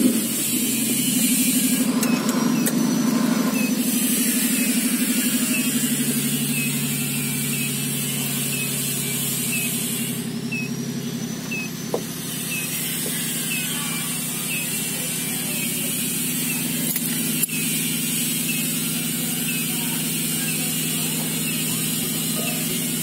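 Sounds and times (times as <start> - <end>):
car engine idling: 0.0 - 23.0
faint repeating chirp: 3.5 - 22.8.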